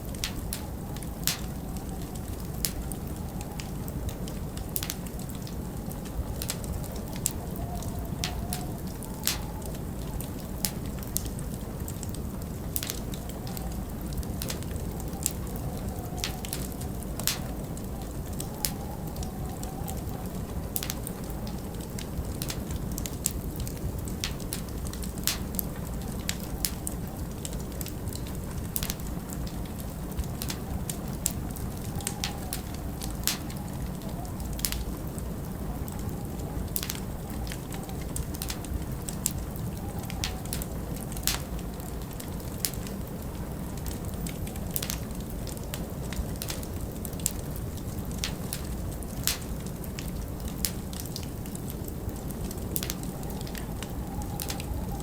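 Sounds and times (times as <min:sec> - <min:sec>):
wind rumbling and whistling: 0:00.0 - 0:55.0
wood fire crackling and popping: 0:00.0 - 0:55.0.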